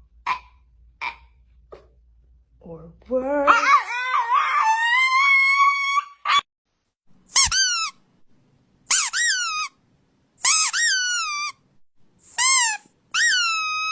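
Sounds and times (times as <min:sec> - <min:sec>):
pet squeaking cries: 0:07.4 - 0:08.0, 0:08.9 - 0:09.7, 0:10.4 - 0:11.6, 0:12.3 - 0:13.9.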